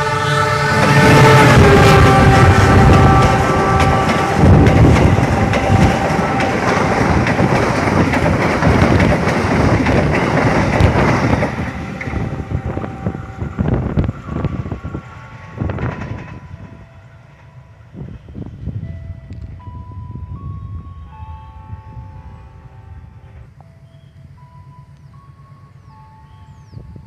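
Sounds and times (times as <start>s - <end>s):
train passing rumble: 0.0s - 27.0s
wheels clattering over rail joints: 0.8s - 16.8s.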